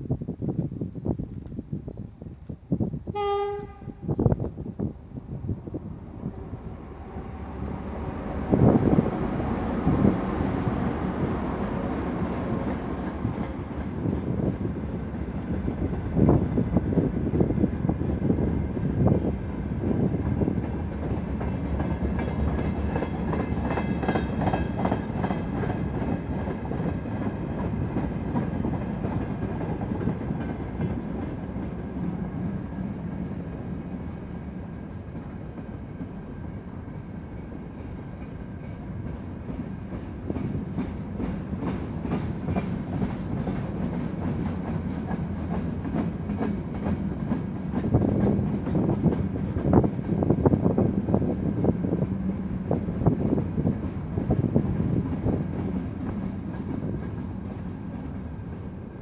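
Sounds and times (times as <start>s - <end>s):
train rumble: 0.1s - 59.0s
train wheels clacking over joints: 20.2s - 31.8s, 37.8s - 50.4s.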